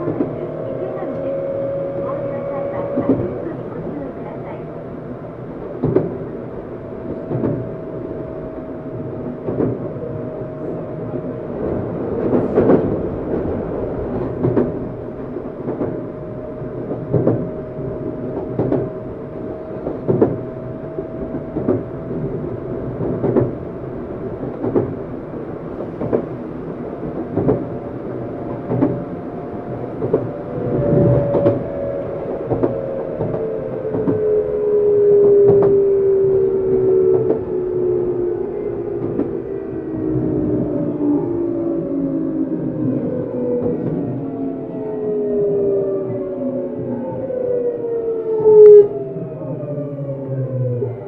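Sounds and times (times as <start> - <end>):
train motor whine: 0.0 - 51.0
train wheels knocking on rail joints: 23.0 - 23.7, 24.4 - 25.0, 27.1 - 27.8.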